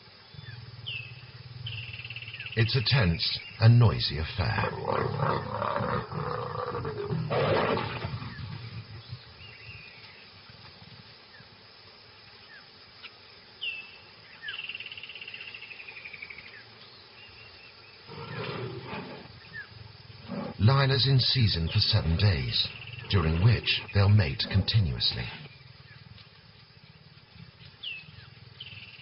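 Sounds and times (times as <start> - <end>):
birds chirping: 0.0 - 10.3, 13.4 - 29.0
lions growling and snarling: 4.4 - 8.9, 18.1 - 19.4, 20.2 - 21.0.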